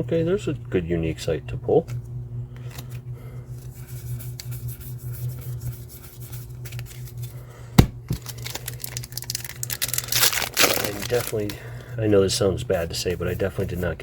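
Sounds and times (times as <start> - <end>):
trading cards rustling: 6.4 - 7.5, 8.1 - 11.9.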